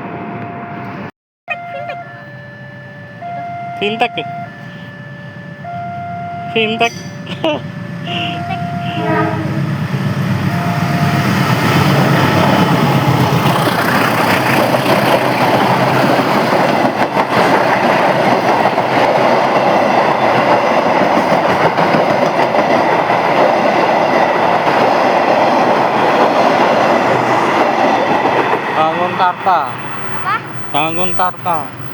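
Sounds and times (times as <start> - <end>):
locomotive engine drone: 0.0 - 31.9
train coaches rushing over rails: 1.6 - 31.9
train clatter: 6.6 - 31.9.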